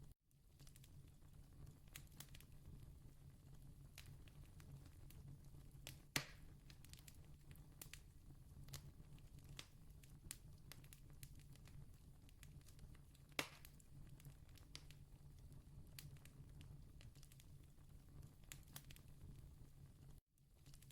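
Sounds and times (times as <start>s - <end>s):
campfire crackling: 0.5s - 19.4s
sharp fire pops: 5.8s - 8.0s, 12.6s - 15.0s.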